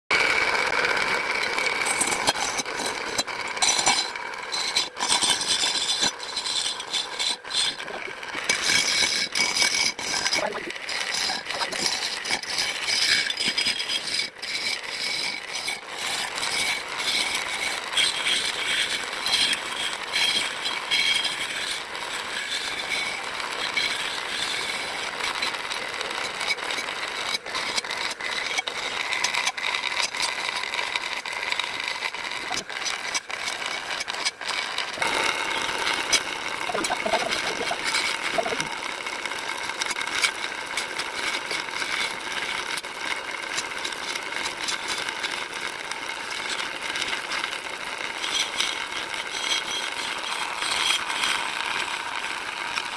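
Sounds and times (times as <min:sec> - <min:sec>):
tool scraping spinning wood: 0:00.1 - 0:52.9
wood lathe motor whine: 0:00.1 - 0:52.9.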